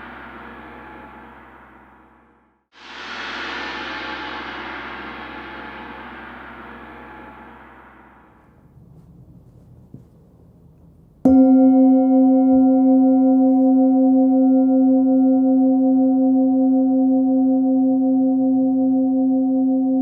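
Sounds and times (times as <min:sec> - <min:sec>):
singing bowl ringing: 0:11.3 - 0:20.0.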